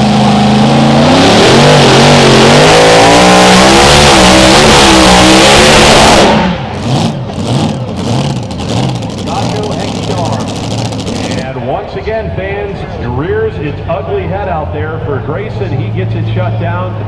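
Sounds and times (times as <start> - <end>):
tractor engine running flat out: 6.4 - 11.8.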